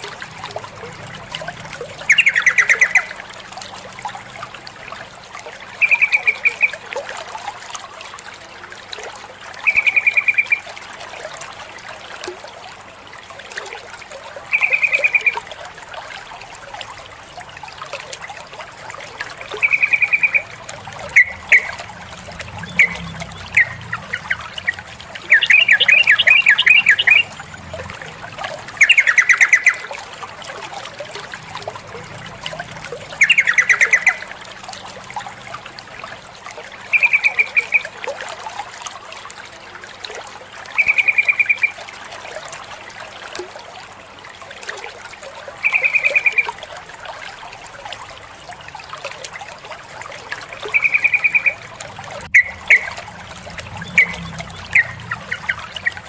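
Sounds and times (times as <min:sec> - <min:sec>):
trickle of water: 0:00.0 - 0:56.0
bulbul chattering calls: 0:02.0 - 0:03.1, 0:14.5 - 0:15.4, 0:19.6 - 0:27.3, 0:28.8 - 0:29.9, 0:33.2 - 0:34.2, 0:50.7 - 0:51.6, 0:52.3 - 0:53.0.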